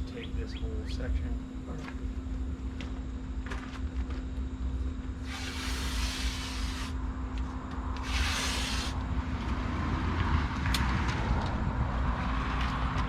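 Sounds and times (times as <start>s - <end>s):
steady low rumble: 0.0s - 13.0s
tape pulled off a roll: 5.2s - 7.0s, 8.0s - 9.0s.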